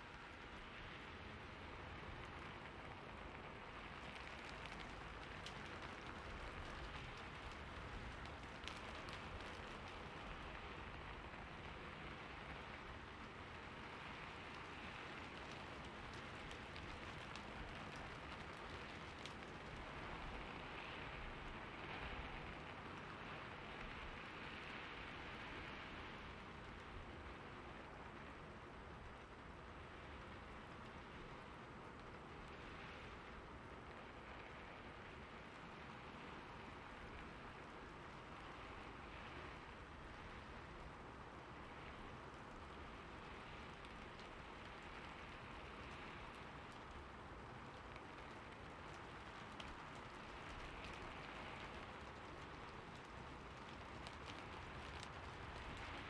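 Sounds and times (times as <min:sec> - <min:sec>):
steady rain hiss: 0:00.0 - 0:56.0
rain drop taps: 0:03.8 - 0:11.1, 0:14.5 - 0:20.5, 0:41.6 - 0:56.0.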